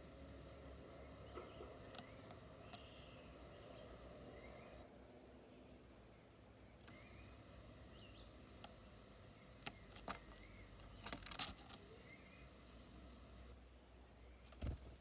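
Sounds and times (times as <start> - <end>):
sharp clicks: 0.0 - 4.8, 6.8 - 13.6.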